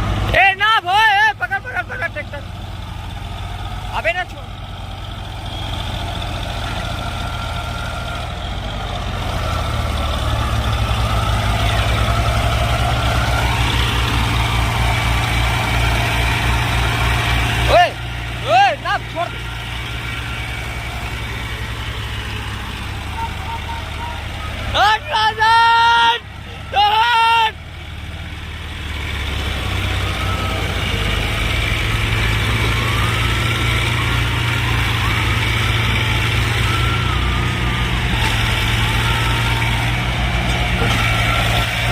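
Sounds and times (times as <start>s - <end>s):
diesel tractor engine under load: 0.0s - 41.9s.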